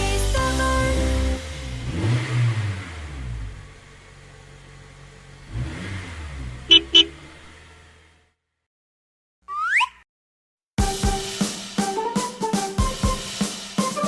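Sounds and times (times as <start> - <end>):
cartoon bus engine revving: 0.0 - 4.1, 5.2 - 8.4.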